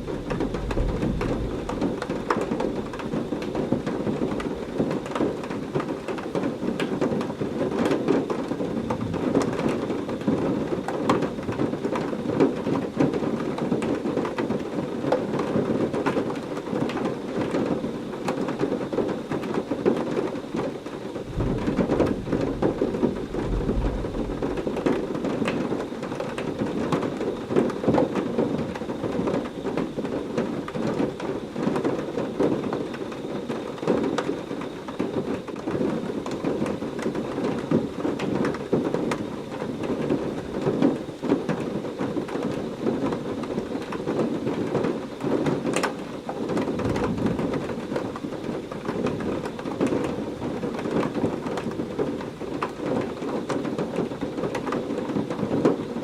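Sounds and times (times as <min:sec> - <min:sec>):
rolling thunder: 0:00.0 - 0:05.2, 0:21.2 - 0:27.2
heavy rain falling: 0:00.0 - 0:56.0.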